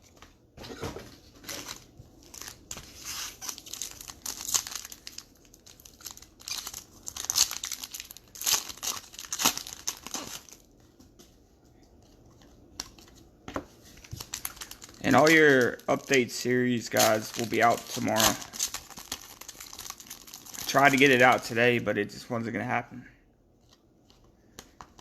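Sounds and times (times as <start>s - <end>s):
plastic wrappers crinkling and tearing: 1.3s - 10.7s, 13.8s - 21.6s.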